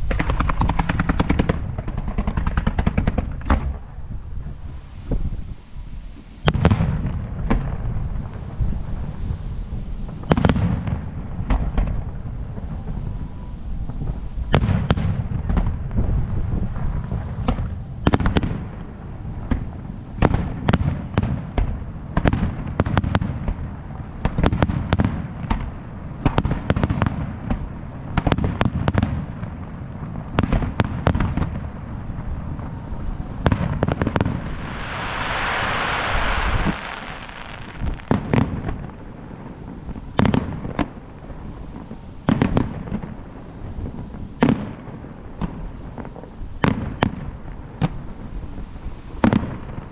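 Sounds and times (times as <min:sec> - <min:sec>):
fireworks bursting: 0:00.0 - 0:49.9
low rumble: 0:31.4 - 0:40.2
fireworks hiss: 0:31.9 - 0:42.8, 0:47.6 - 0:49.9.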